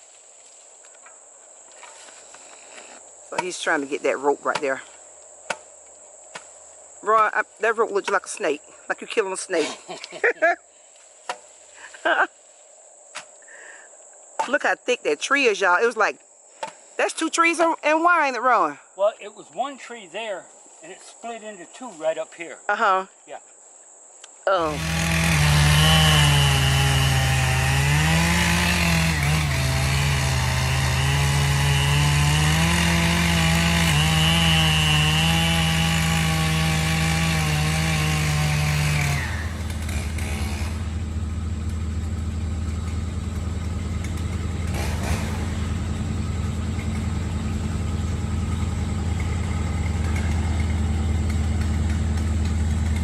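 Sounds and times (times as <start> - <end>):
chainsaw running under load: 24.6 - 53.0
vehicle engine idling: 39.4 - 53.0.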